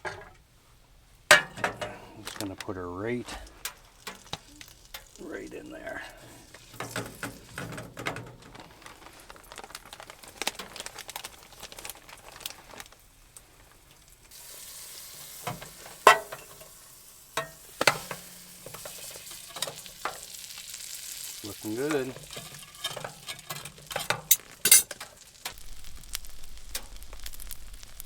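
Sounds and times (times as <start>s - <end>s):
dough sizzling in a pan: 1.0s - 28.0s
utensil scraping and tapping pan: 1.3s - 2.7s, 6.5s - 8.4s, 15.5s - 16.7s, 17.4s - 20.4s, 21.6s - 25.6s.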